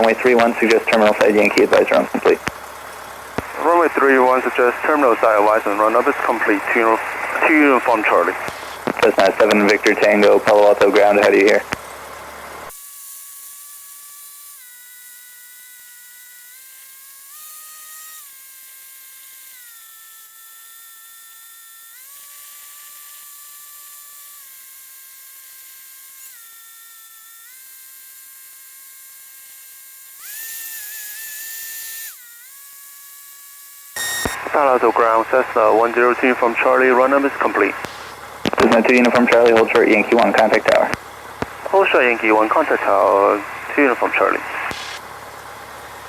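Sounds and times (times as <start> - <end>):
aircraft engine high whine: 0.0 - 12.6, 34.4 - 46.0
loud hiss: 0.2 - 12.7, 34.0 - 45.2.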